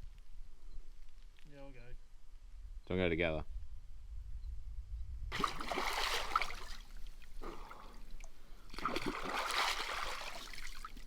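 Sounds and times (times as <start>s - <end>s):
water splashing in rock pool: 5.3s - 11.0s.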